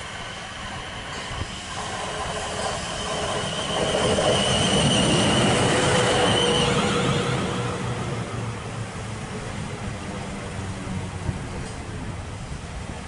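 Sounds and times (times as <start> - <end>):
steady high whine: 0.0 - 9.2
train wheels rumbling on rails: 0.0 - 13.0.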